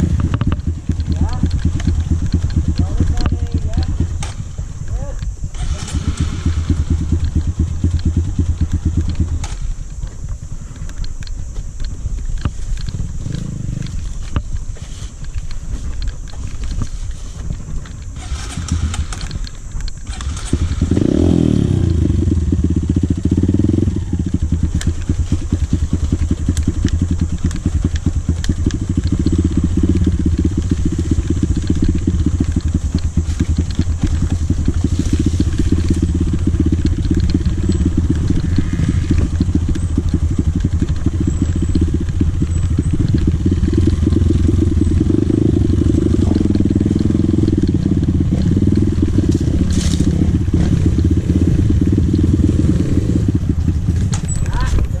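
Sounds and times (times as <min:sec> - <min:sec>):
dirt bike engine running: 0:00.0 - 0:55.0
small clicks and knocks: 0:07.2 - 0:18.1.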